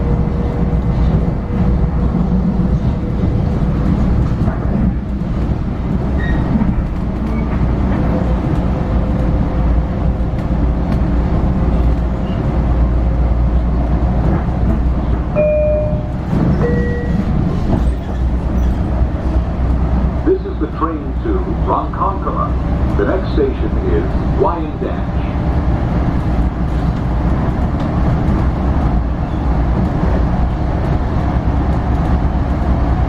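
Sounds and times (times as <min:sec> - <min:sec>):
train ride rumble: 0:00.0 - 0:33.0.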